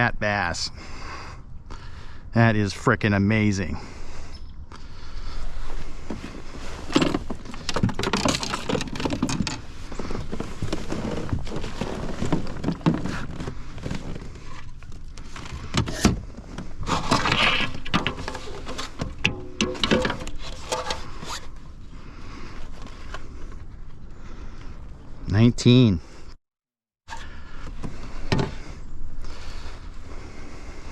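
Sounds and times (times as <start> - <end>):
rustling: 5.1 - 24.0
fishing gear knocking and rattling: 6.8 - 21.2.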